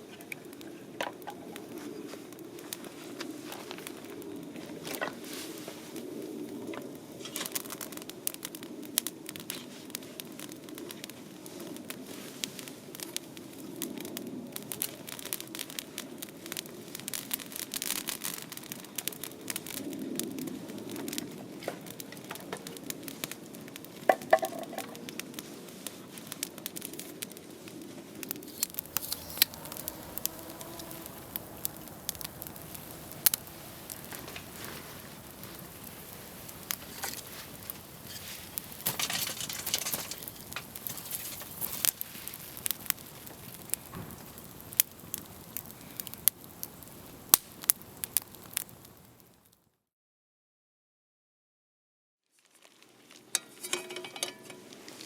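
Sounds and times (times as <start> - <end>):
campfire crackling and popping: 5.9 - 25.4, 28.1 - 49.6.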